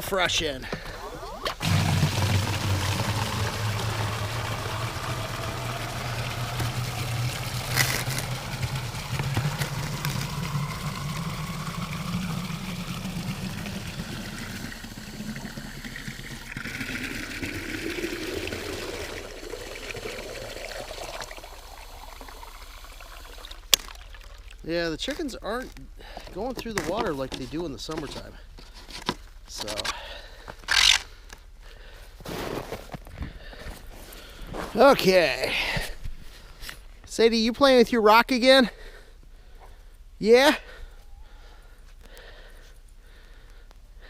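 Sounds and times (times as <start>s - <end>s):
water pouring into container: 1.6s - 25.7s.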